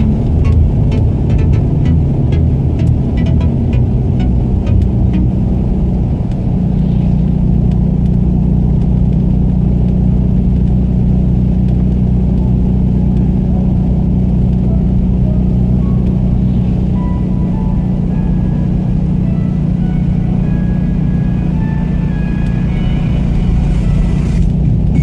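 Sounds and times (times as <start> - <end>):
vehicle engine and road noise: 0.0 - 25.0.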